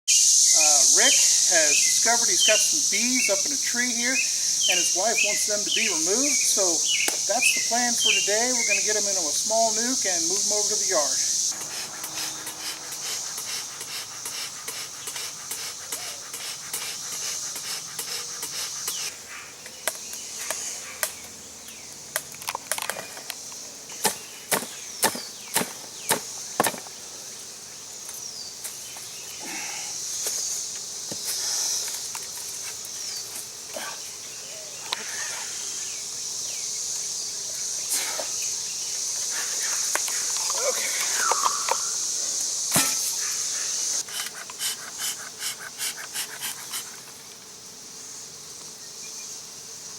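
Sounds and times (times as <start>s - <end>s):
insect chorus: 0.1s - 49.9s
knocks and cracks on wood: 24.0s - 26.9s.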